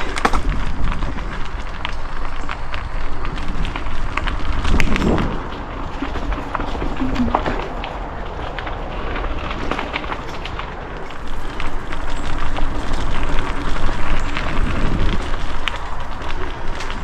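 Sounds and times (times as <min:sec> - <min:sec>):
bike clicks and rattles: 0:00.0 - 0:17.0
bike tyres on dirt trail: 0:00.0 - 0:17.0.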